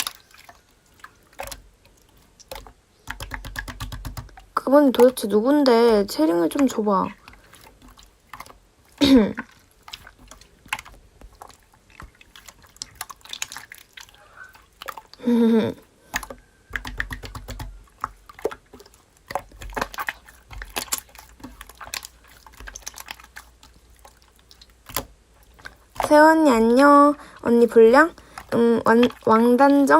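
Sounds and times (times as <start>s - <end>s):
slime squished by hand: 16.1s - 26.6s.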